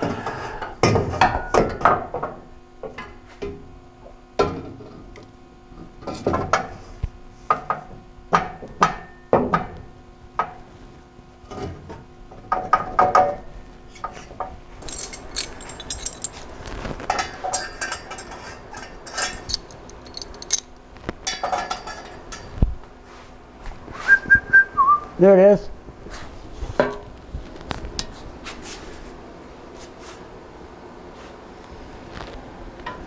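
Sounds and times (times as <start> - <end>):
metal pipes knocking and clanking: 12.4 - 22.6
metallic rattling and scraping: 13.9 - 22.6.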